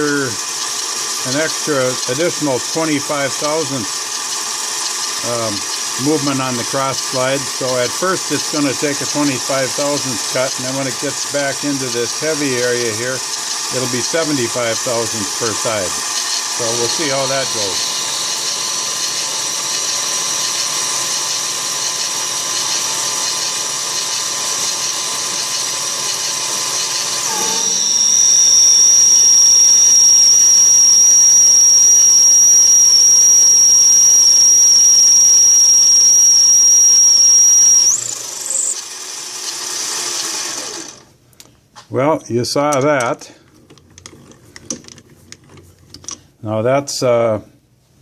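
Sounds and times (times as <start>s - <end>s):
lathe motor whining: 0.0s - 41.1s
high-pitched cutting squeal: 8.4s - 22.0s, 22.6s - 38.9s.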